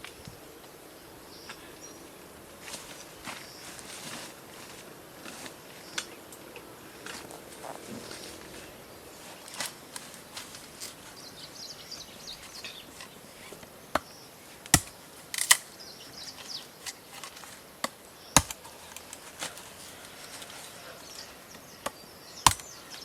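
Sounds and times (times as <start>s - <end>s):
birds chirping: 4.9s - 23.0s
wood being chopped: 13.9s - 15.6s, 17.8s - 18.7s, 21.8s - 22.8s.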